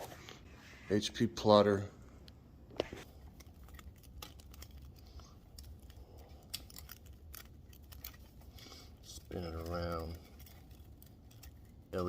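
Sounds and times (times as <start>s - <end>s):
small handling noises: 0.0s - 12.0s.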